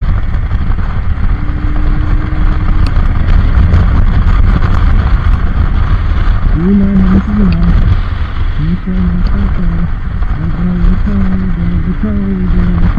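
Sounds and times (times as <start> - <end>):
vehicle engine rumbling: 0.0 - 12.9
person speaking: 6.5 - 7.9, 8.6 - 12.9.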